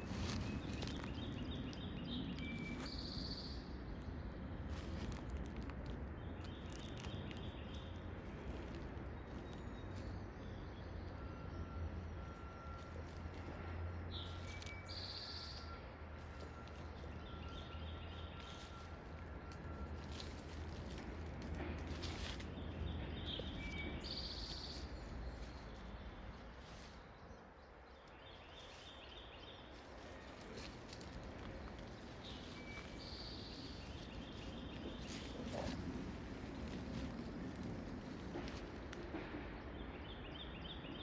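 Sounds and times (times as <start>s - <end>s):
steady low rumble: 0.0s - 41.0s
bird chirps: 9.3s - 20.3s, 22.4s - 35.9s.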